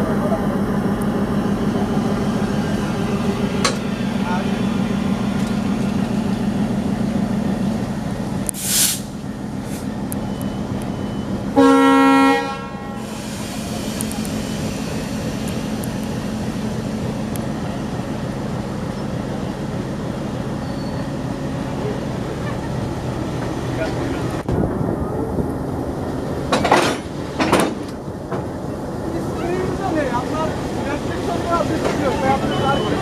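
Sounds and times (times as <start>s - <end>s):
diesel locomotive idling: 0.0s - 33.0s
air hiss: 8.5s - 9.9s, 13.0s - 15.5s
locomotive horn blast: 11.5s - 13.2s.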